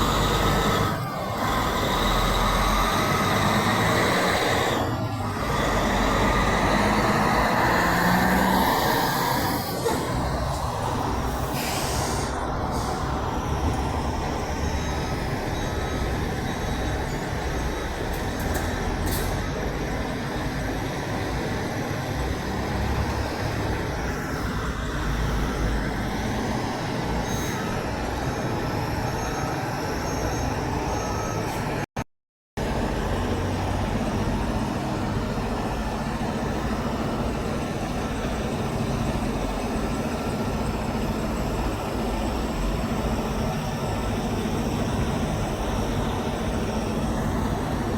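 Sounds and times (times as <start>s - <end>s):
semi trucks passing on road: 0.0s - 31.8s, 32.6s - 47.9s
brief high hisses: 11.3s - 13.2s.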